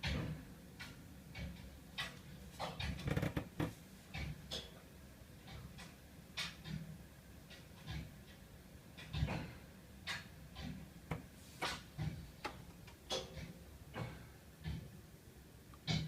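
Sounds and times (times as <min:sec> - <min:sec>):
heating pipes ticking and knocking: 0:00.0 - 0:16.0.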